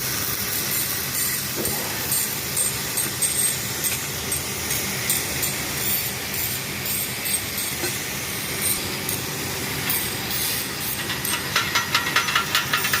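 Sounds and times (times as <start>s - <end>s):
arc welding crackling hiss: 0.0s - 13.0s.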